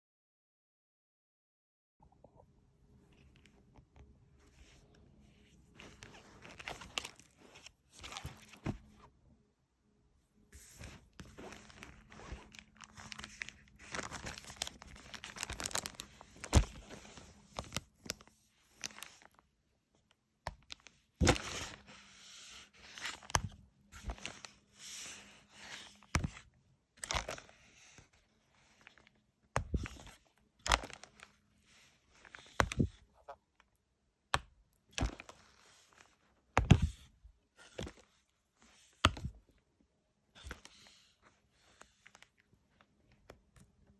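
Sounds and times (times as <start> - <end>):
paper pages rustling: 4.5 - 9.1, 10.6 - 19.4.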